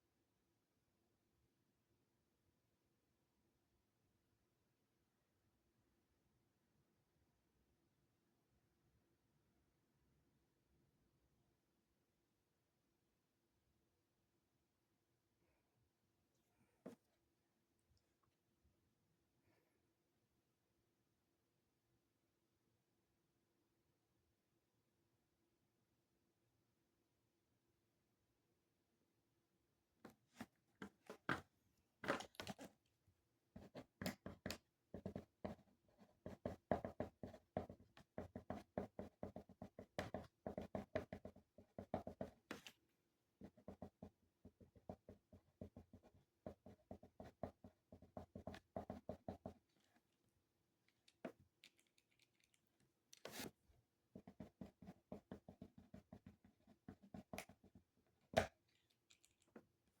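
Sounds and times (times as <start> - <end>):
pen scratching on paper: 33.6 - 42.7, 43.4 - 50.0, 53.2 - 58.5.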